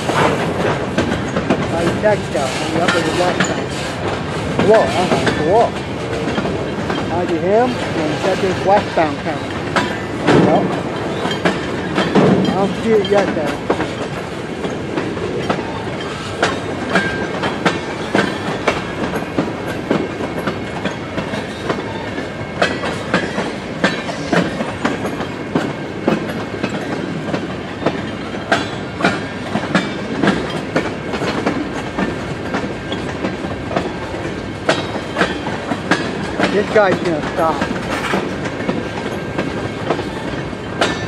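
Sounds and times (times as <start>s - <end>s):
train rumbling and rattling: 0.0s - 41.0s
train wheels clacking over rail joints: 0.0s - 41.0s.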